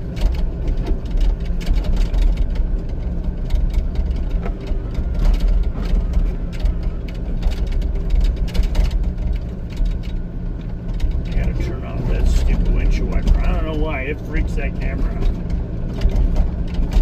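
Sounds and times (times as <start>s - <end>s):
excavator diesel engine droning: 0.0s - 17.0s
machine clanks and rattles: 0.1s - 11.4s, 15.0s - 17.0s.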